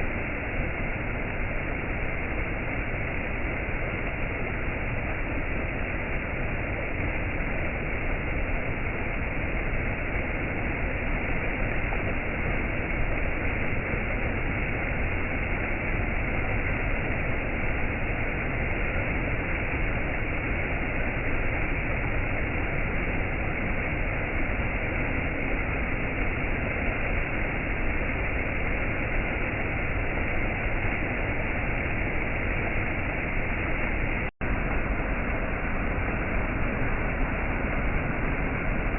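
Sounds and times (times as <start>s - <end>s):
waterfall rushing: 29.8s - 38.9s.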